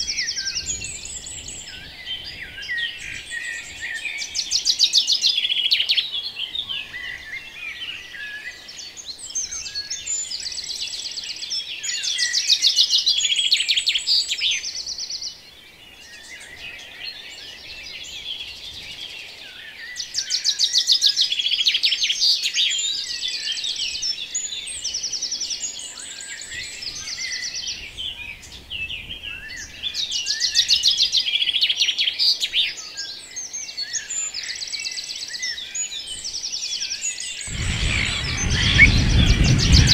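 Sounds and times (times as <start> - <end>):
songbirds chirping: 22.4 - 39.9
fast bird trills: 37.4 - 39.9.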